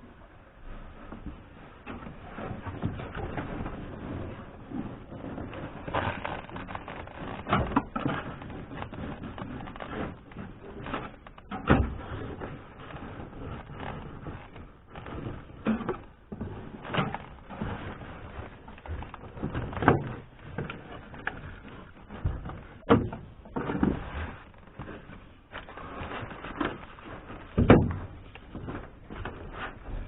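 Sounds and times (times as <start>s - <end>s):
knocks clicks and scraping on trim: 1.9s - 30.0s.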